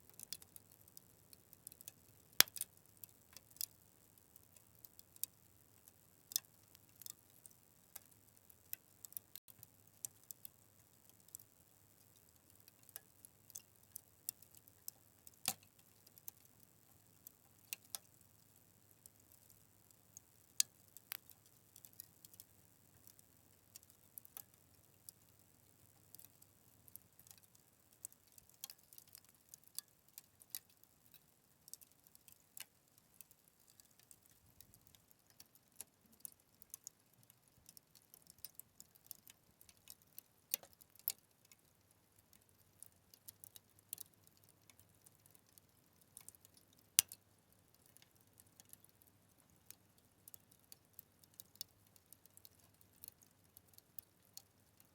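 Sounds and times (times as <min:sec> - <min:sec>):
fire crackling: 0:00.1 - 0:41.1.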